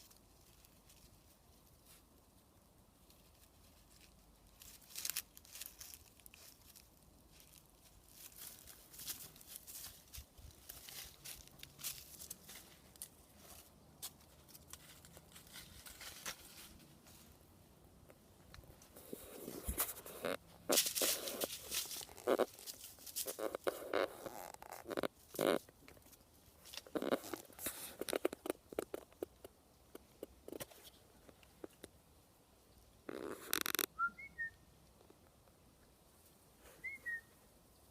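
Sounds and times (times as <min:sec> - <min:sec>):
puppy rustling and scratching: 0:03.0 - 0:17.4, 0:18.6 - 0:31.8.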